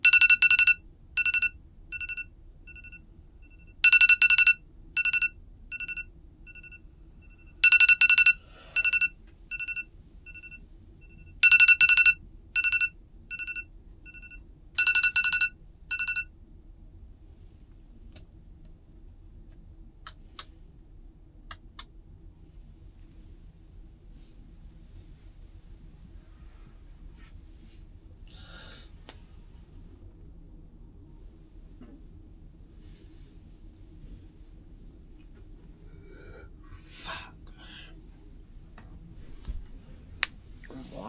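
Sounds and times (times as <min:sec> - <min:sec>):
phone ringtone beeping: 0:00.0 - 0:16.3
low steady hum: 0:00.0 - 0:41.0.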